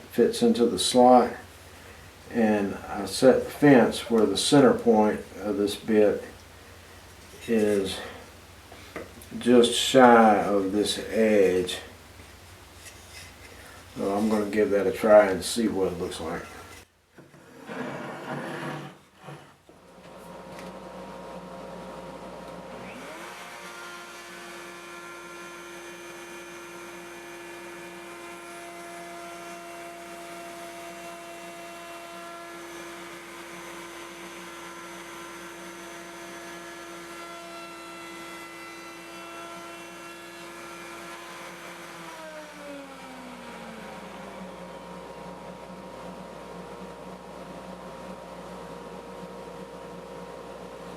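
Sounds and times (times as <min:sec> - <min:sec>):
router whining: 0:22.5 - 0:45.5.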